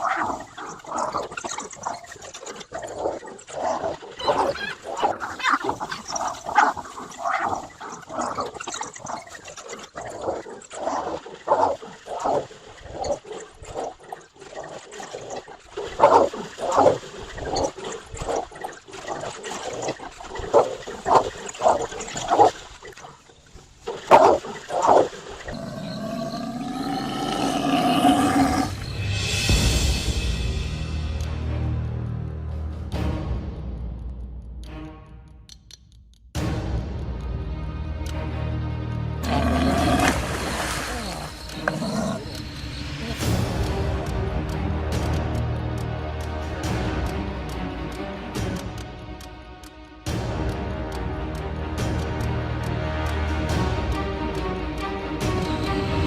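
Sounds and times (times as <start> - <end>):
animal calls: 0.0 - 28.9, 39.2 - 43.4
music: 26.7 - 56.0.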